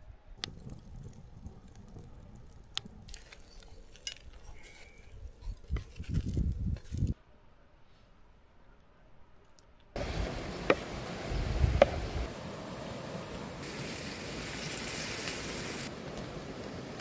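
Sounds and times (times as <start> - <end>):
hiss: 10.0 - 17.0.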